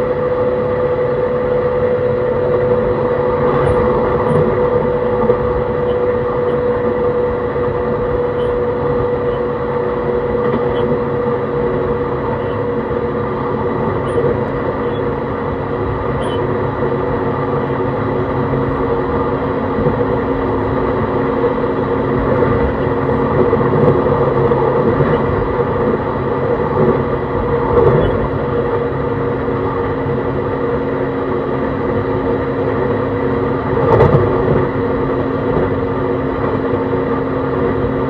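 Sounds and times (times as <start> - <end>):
wheel-on-rail rumble: 0.0 - 38.0
traction motor tones: 2.6 - 30.2.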